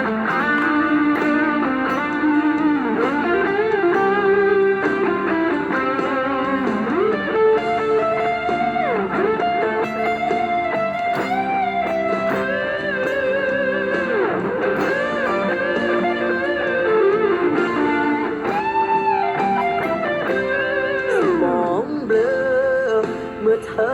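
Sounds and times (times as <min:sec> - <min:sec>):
guitar slide down in pitch: 0:00.0 - 0:21.9
electric guitar lead notes: 0:00.0 - 0:23.9.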